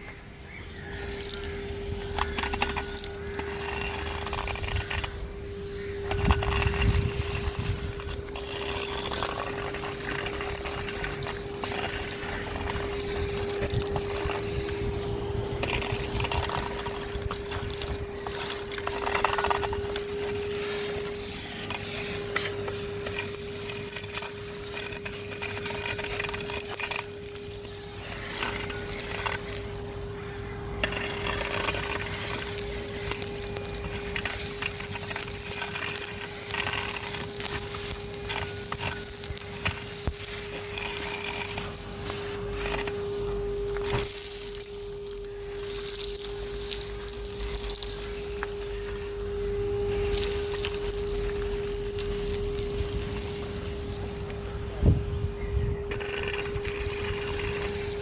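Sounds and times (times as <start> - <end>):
debris rattling up hose: 0.4 - 54.6, 55.8 - 58.0.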